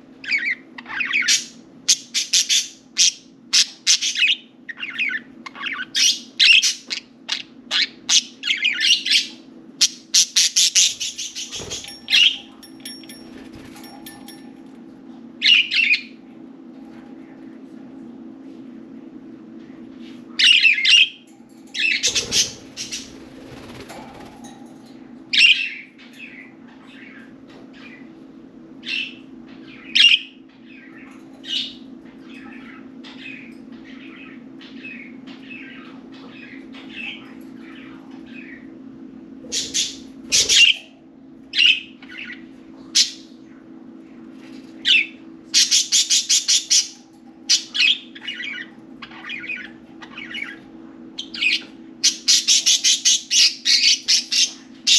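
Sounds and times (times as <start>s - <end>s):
low hum: 10.8s - 45.5s.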